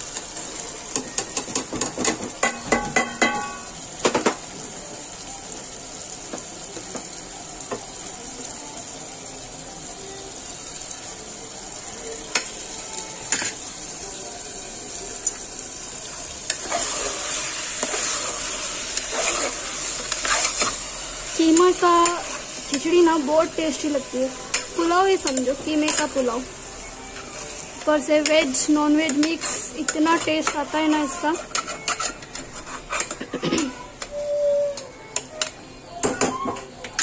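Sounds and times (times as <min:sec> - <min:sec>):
masala sizzling in a pan: 0:00.0 - 0:37.0
metal spoon clinking against pan: 0:02.4 - 0:03.7, 0:28.2 - 0:30.7, 0:31.4 - 0:32.4.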